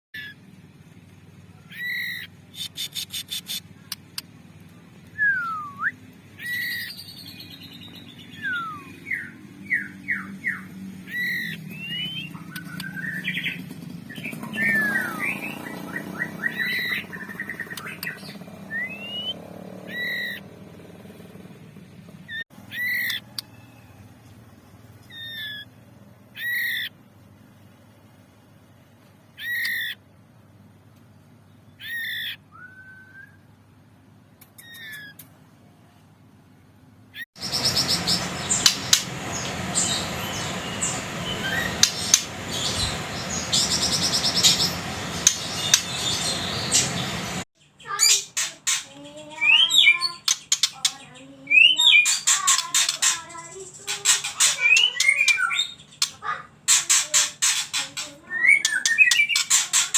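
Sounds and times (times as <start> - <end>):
bird calling with sharp notes: 0.2 - 0.4, 1.5 - 4.3, 5.1 - 20.5, 22.2 - 24.1, 25.0 - 27.0, 29.3 - 30.0, 31.7 - 33.6, 34.5 - 35.3, 37.1 - 59.9
rapid bird chirps and clicks: 1.1 - 5.2, 6.0 - 8.3, 9.0 - 20.5, 22.3 - 23.5, 24.2 - 26.9, 29.4 - 30.0, 34.4 - 35.4, 37.4 - 59.9.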